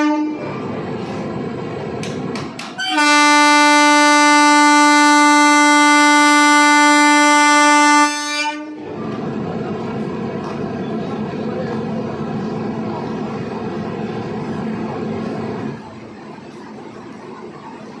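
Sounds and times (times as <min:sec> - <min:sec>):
train horn blast: 0:00.0 - 0:00.6, 0:02.8 - 0:08.9
train rumbling: 0:00.0 - 0:18.0.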